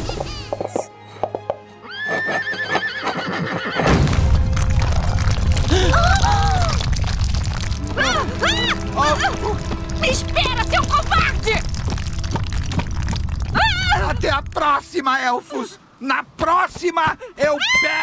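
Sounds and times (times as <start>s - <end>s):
dramatic music score: 0.7s - 15.5s
cartoon unicorn whinnying: 13.5s - 14.2s.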